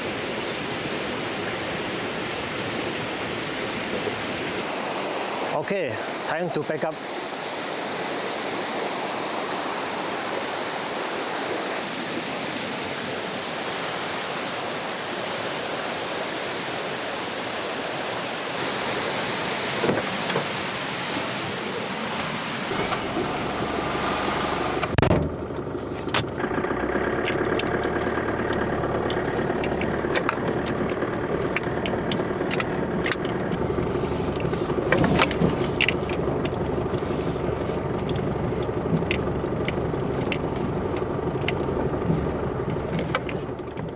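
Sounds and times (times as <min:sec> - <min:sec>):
river rushing: 0:00.0 - 0:25.1, 0:25.8 - 0:43.6
car engine running: 0:22.0 - 0:43.9
loud thump: 0:24.9 - 0:25.4.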